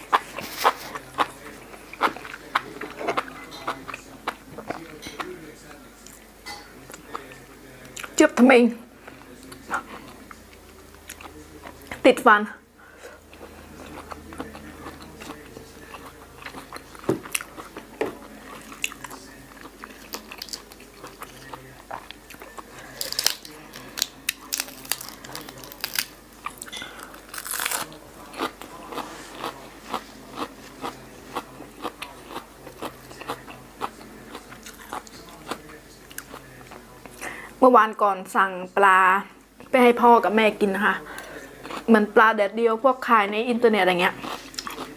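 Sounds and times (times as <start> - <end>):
woman chewing crunchy salad: 0.0 - 5.3, 9.0 - 12.0, 13.1 - 37.2, 41.2 - 41.9, 44.1 - 44.9.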